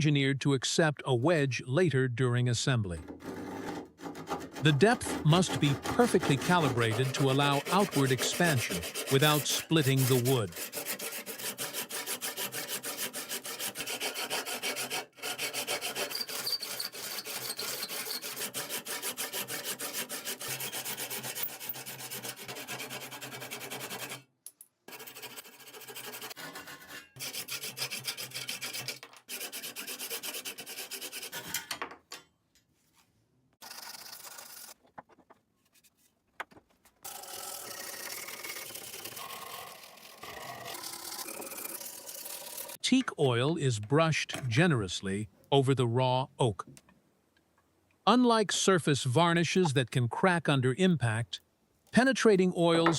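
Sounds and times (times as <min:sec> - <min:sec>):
abrasive scraping on wood: 0:03.0 - 0:22.4.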